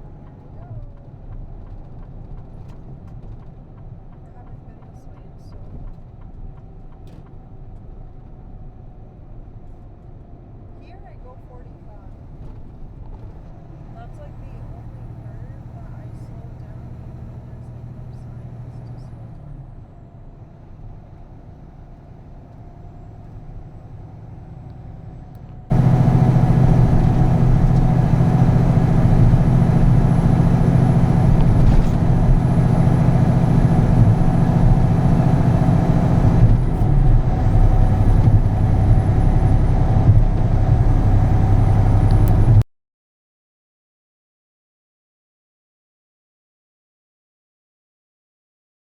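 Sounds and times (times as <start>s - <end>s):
truck diesel engine droning: 13.4s - 42.6s.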